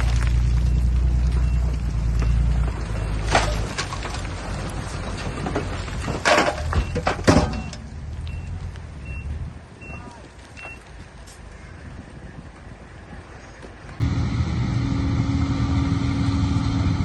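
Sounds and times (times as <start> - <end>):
diesel machinery rumbling: 0.0 - 10.1, 13.9 - 17.0.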